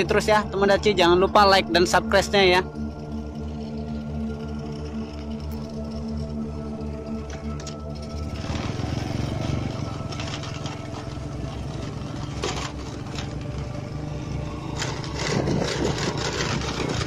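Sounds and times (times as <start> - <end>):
small motorcycle engine running: 1.7 - 17.0
knocks and rattles: 9.9 - 13.7, 14.7 - 17.0.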